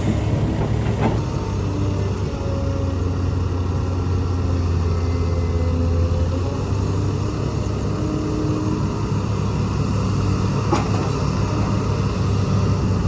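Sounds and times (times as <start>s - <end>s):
diesel machinery engine running: 0.0s - 13.0s.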